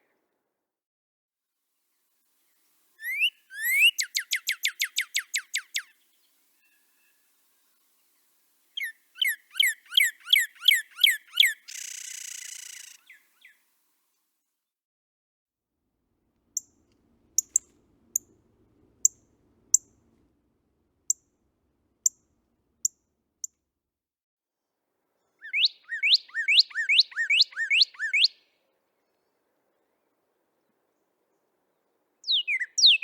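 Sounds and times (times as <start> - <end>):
bird slurred whistles: 3.0 - 5.9, 8.8 - 13.2, 25.4 - 28.4, 32.2 - 33.0
bird chip notes: 16.6 - 23.0.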